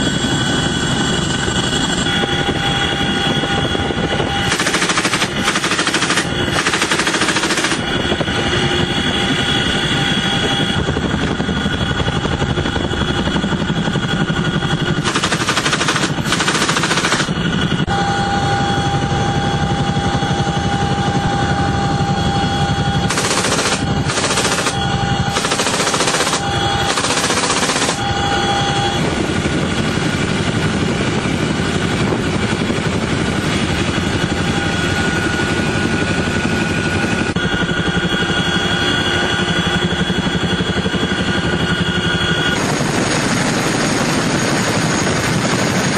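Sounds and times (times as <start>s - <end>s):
constant whine: 0.0s - 45.9s
engine drone: 0.0s - 45.9s
automatic gunfire bursts: 4.5s - 7.8s, 15.0s - 17.3s, 23.1s - 28.0s.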